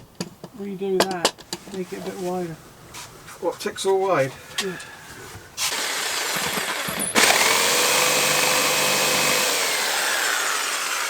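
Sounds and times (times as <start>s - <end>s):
electric jigsaw cutting wood: 5.7s - 11.0s.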